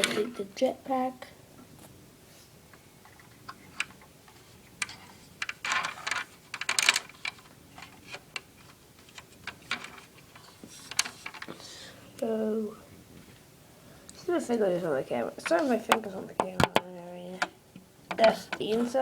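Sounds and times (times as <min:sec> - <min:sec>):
toy parts clicking and tapping: 0:04.8 - 0:08.5.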